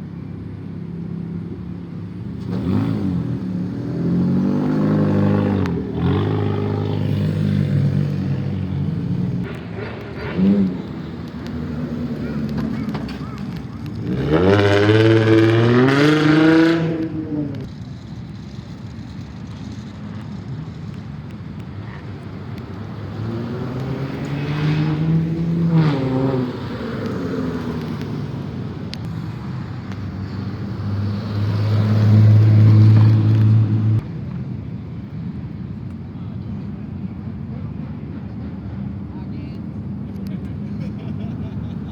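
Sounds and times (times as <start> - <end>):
car engine revving: 2.2 - 21.0, 21.9 - 34.1.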